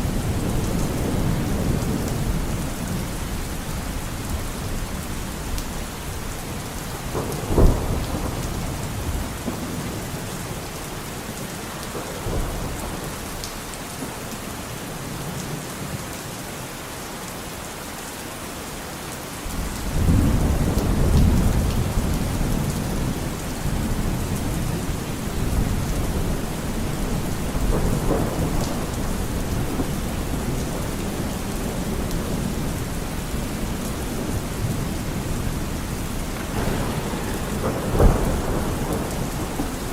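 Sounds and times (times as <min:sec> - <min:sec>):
thunder rumbling: 0:00.0 - 0:11.0, 0:19.5 - 0:39.9
steady rain falling: 0:00.0 - 0:39.9
thunder crack: 0:06.9 - 0:09.9, 0:33.7 - 0:39.9.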